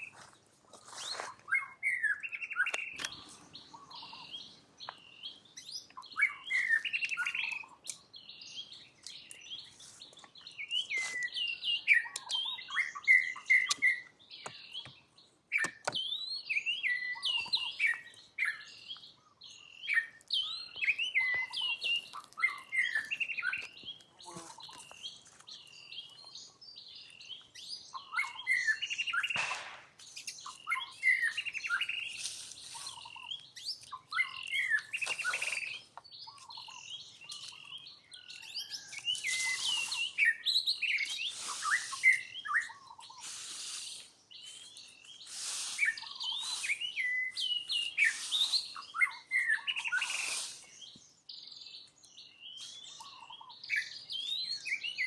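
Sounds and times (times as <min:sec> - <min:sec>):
high-pitched chirps and squeaks: 0:30.2 - 0:50.7
short hissy bursts: 0:43.2 - 0:44.2, 0:45.2 - 0:46.8, 0:50.1 - 0:50.7.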